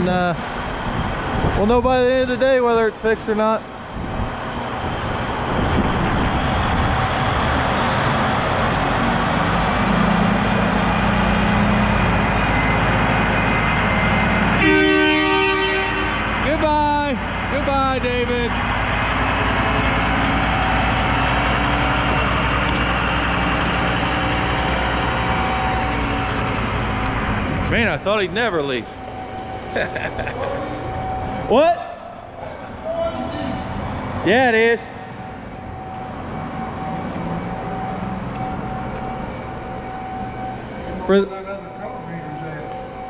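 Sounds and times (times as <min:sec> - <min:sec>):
diesel engine rumbling: 0:00.0 - 0:43.0
mechanical drone with low hum: 0:17.9 - 0:43.0.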